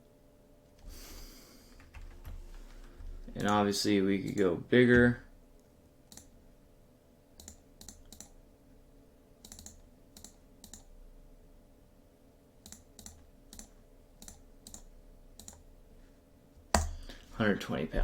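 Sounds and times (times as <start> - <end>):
low steady hum: 0.0 - 18.0
mouse and keyboard clicks: 7.4 - 8.4, 9.4 - 10.9, 12.6 - 15.6.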